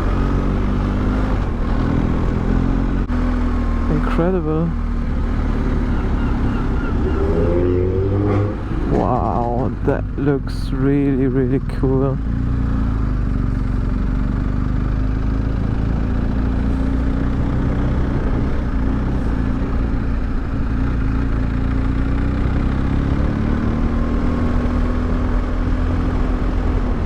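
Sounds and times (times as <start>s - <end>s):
motorcycle engine cruising: 0.0s - 27.0s
wind rumble on microphone: 17.4s - 21.2s.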